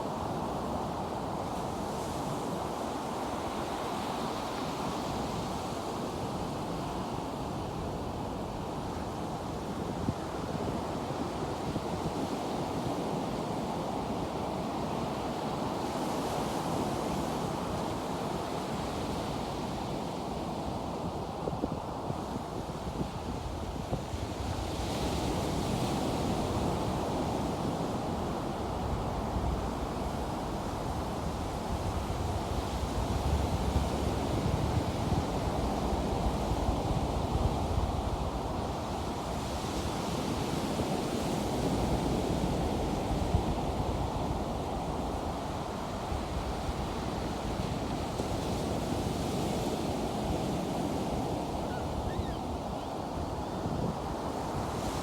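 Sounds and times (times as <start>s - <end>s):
wind rumbling on microphone: 42.6s - 55.0s.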